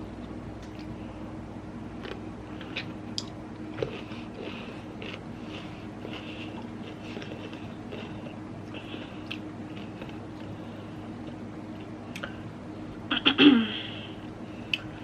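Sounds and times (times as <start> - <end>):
faint steady hum: 0.0 - 15.0
chewing with clicks and smacks: 2.0 - 10.6.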